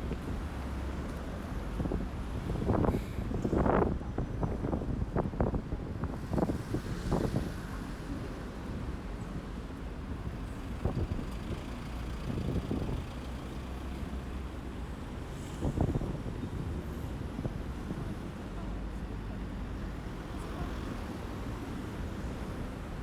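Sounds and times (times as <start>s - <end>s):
wind buffeting microphone: 10.1s - 13.2s.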